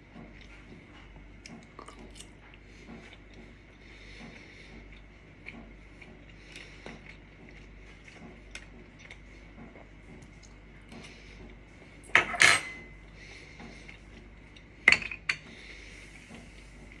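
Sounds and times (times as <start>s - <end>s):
dishes and cutlery clinking: 12.1s - 12.9s
dishes clattering: 12.1s - 12.9s.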